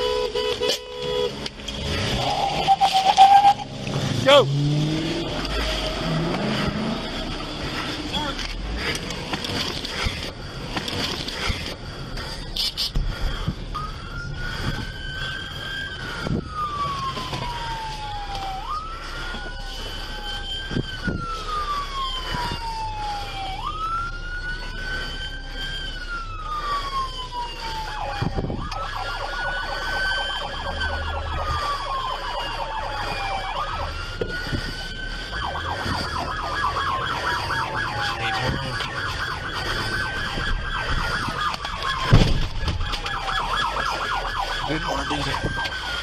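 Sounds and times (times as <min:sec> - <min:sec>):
fast pulsing siren: 0:00.0 - 0:46.0
police siren wailing: 0:00.0 - 0:46.0
sharp thump: 0:42.1 - 0:42.8.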